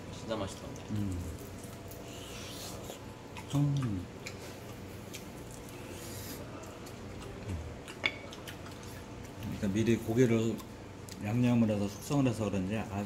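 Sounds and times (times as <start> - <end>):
chewing crunchy food: 0.4 - 12.3.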